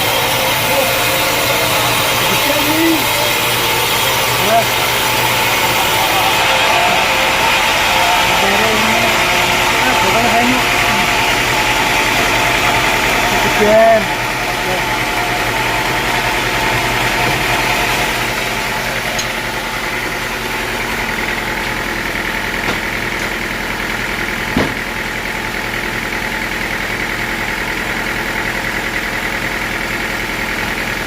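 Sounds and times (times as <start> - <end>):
sawmill engine idling: 0.0 - 31.0
sharp knock: 24.6 - 24.8.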